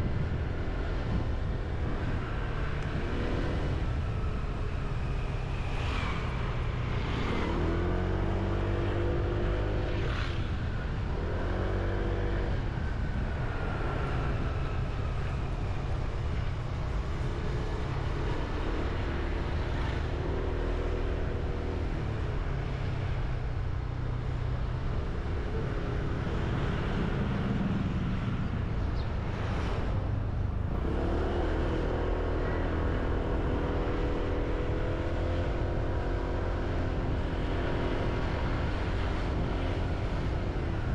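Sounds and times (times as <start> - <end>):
wind noise: 0.0 - 20.3
road rumble: 0.0 - 40.9.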